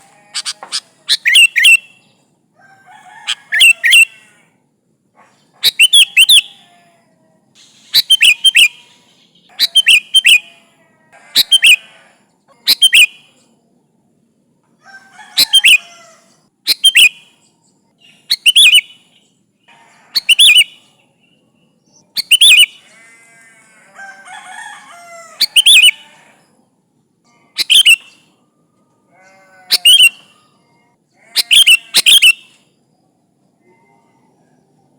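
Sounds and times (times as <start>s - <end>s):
bird chattering calls: 0.2s - 1.9s, 5.6s - 6.5s, 7.6s - 10.5s, 11.3s - 11.9s, 20.1s - 20.8s, 22.2s - 23.3s, 25.4s - 26.0s, 27.6s - 28.2s, 29.7s - 30.3s, 31.2s - 32.6s.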